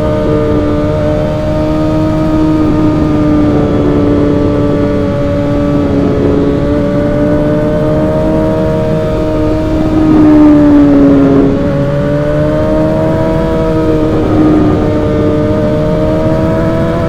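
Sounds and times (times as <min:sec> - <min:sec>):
motorcycle engine at high revs: 0:00.0 - 0:17.0.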